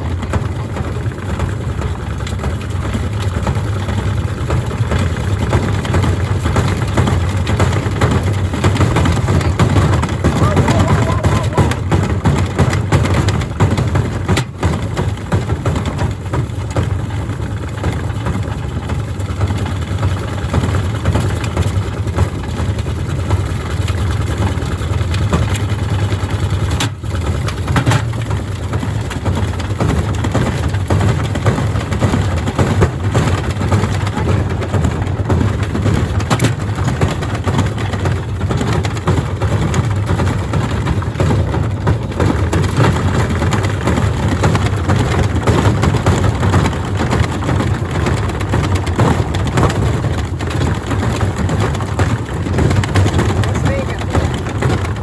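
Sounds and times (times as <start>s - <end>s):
bricks rattling in a drum: 0.0s - 55.0s.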